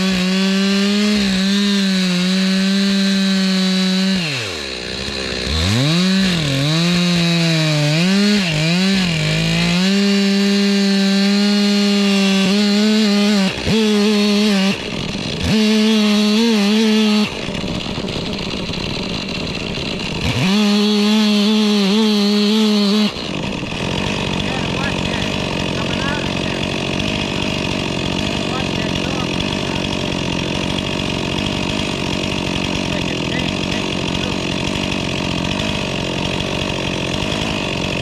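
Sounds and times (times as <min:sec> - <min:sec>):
chainsaw cutting log: 0:00.0 - 0:38.0.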